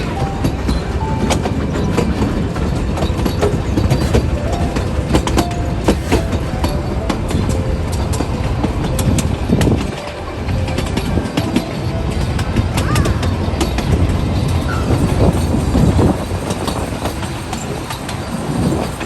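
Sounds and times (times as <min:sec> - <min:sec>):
steam train rumbling on rails: 0:00.0 - 0:19.0
wheels clicking and rattling: 0:00.0 - 0:19.0.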